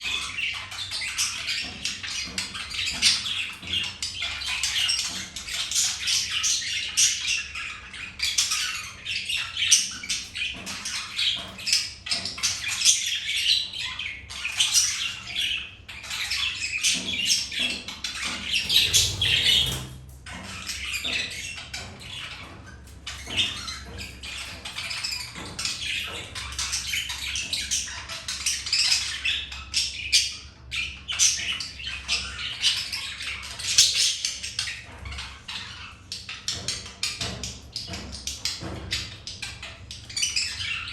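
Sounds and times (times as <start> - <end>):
budgerigars chattering: 18.6 - 20.0.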